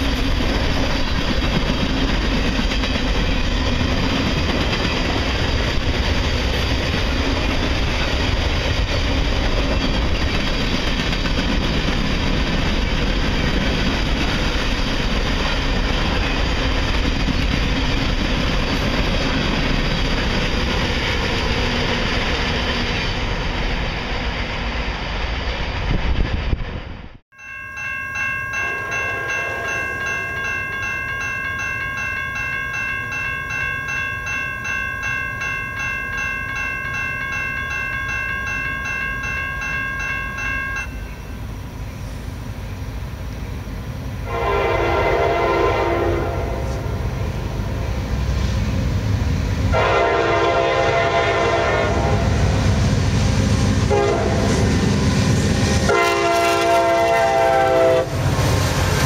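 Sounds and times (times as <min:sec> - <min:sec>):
railroad crossing bell ringing: 0:00.0 - 0:24.0, 0:27.3 - 0:47.3, 0:49.8 - 0:52.6
freight train wheels rumbling: 0:00.0 - 0:59.0.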